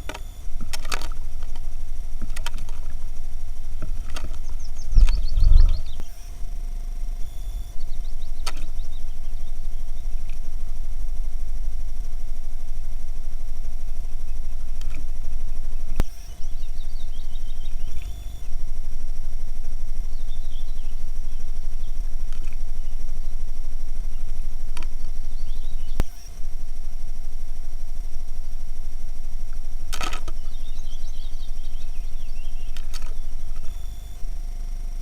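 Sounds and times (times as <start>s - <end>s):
steady low rumble: 0.0s - 30.0s
faint high bird chirps: 4.2s - 6.4s, 7.2s - 10.2s, 16.0s - 18.5s, 20.0s - 26.3s, 30.3s - 34.3s.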